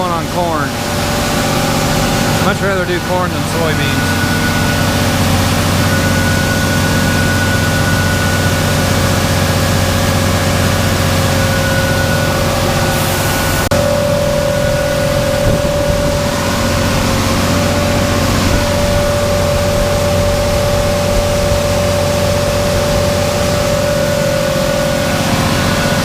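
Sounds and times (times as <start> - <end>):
constant machine whine: 0.0 - 26.0
diesel engine hum: 0.0 - 26.0.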